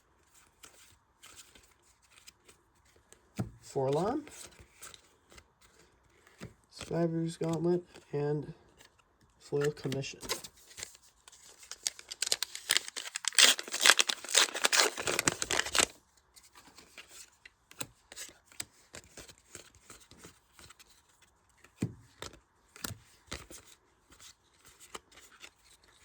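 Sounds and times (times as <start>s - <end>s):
cards rustling: 0.3s - 26.0s
foil pack tearing and crinkling: 11.4s - 16.0s.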